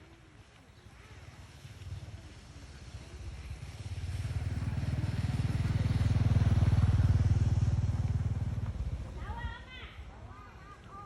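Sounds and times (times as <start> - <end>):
vehicle engine passing by: 1.5 - 9.2.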